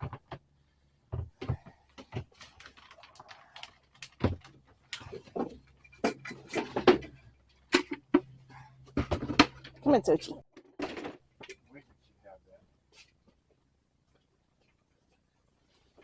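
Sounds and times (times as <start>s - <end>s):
irregular knocks and clatters: 1.1s - 9.8s.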